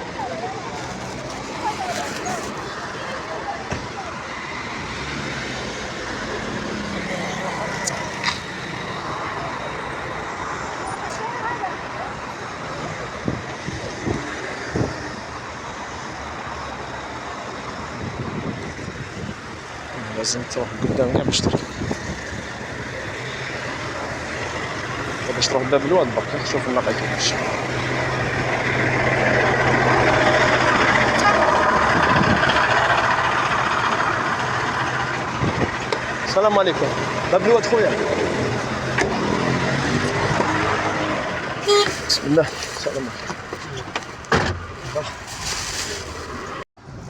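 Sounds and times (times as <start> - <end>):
city street traffic: 0.0 - 47.0
vehicle engine idling: 0.0 - 47.0.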